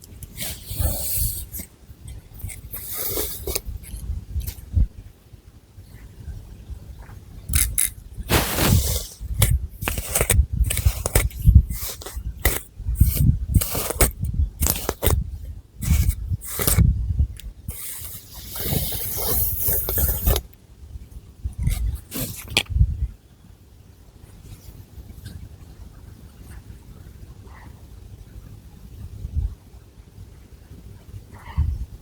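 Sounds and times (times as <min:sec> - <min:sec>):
fingernails scratching hair and scalp: 0:00.4 - 0:01.7, 0:07.6 - 0:15.2, 0:15.8 - 0:16.8, 0:17.7 - 0:20.4.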